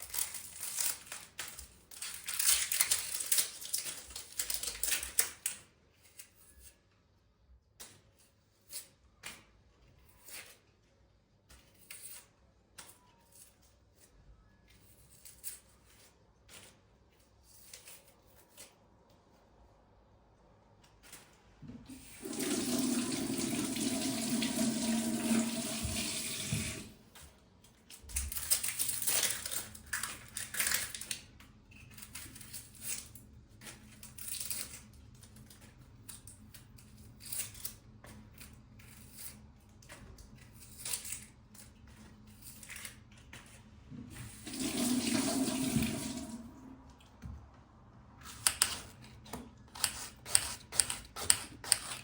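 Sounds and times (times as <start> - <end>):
tap water running into sink: 21.9 - 27.0, 44.3 - 46.7.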